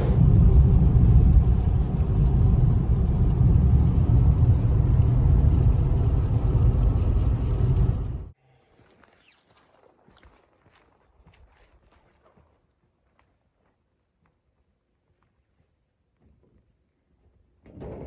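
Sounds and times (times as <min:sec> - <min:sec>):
loud steady low rumble: 0:00.0 - 0:08.4.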